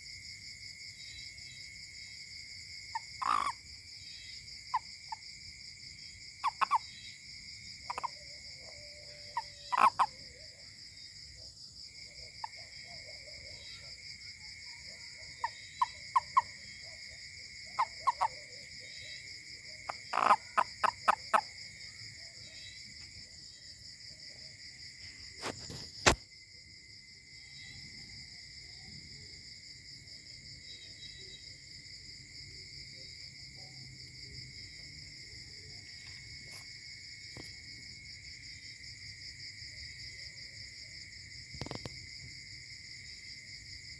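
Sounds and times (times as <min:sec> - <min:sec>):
insects trilling: 0:00.0 - 0:43.9
toad croaking: 0:02.8 - 0:05.2, 0:06.3 - 0:07.2, 0:07.8 - 0:10.7, 0:14.7 - 0:22.8.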